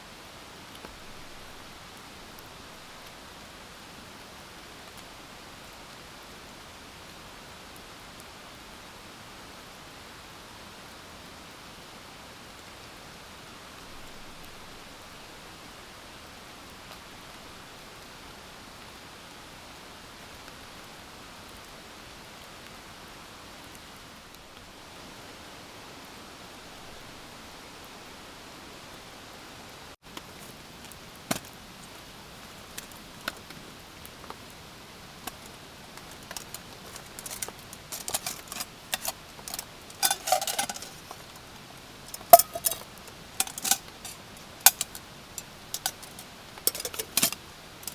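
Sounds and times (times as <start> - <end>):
camp gear clicks and knocks: 30.1 - 33.6, 35.1 - 47.9
metallic ringing clink: 35.3 - 41.4, 42.1 - 47.9.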